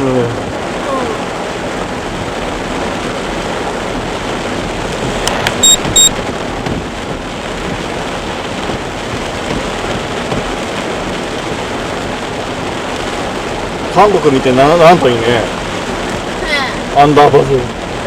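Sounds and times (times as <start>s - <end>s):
heavy rain on moving car: 0.0s - 18.0s
short high electronic beeps: 5.6s - 6.2s.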